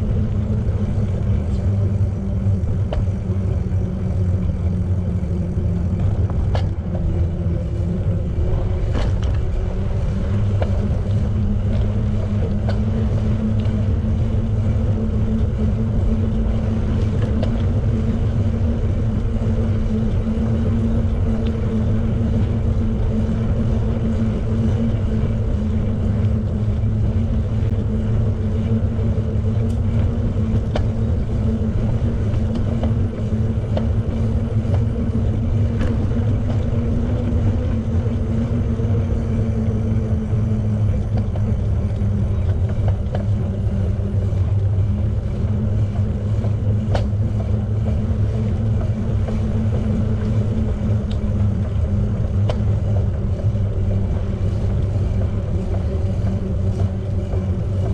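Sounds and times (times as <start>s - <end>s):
bicycle tyre and road noise: 0.0s - 57.9s
faint steady hum: 0.0s - 57.9s
wind on microphone: 0.0s - 57.9s
light ticks: 0.6s - 3.3s, 45.8s - 53.6s.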